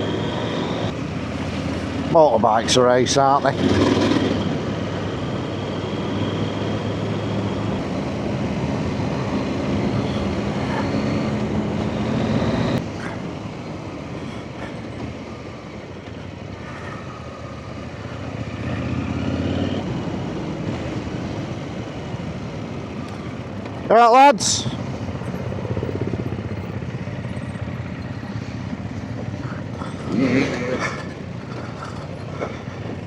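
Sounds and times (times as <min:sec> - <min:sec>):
motorcycle engine running: 0:24.6 - 0:33.0.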